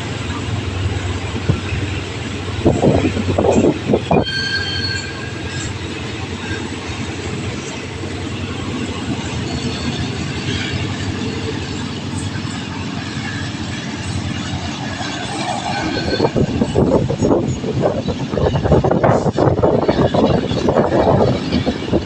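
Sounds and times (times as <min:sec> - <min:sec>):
train wheels rumbling on rails: 0:00.0 - 0:22.0
high wheel squeal: 0:02.8 - 0:07.1.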